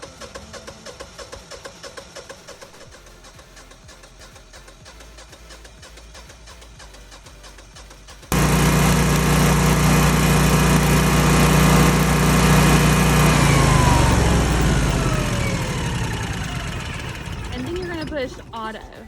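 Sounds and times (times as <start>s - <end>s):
falling whine: 8.3s - 17.9s
generator engine running: 8.3s - 19.0s.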